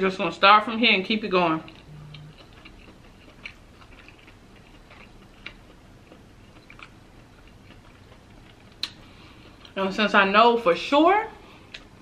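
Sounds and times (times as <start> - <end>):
faint chewing: 1.6 - 9.9.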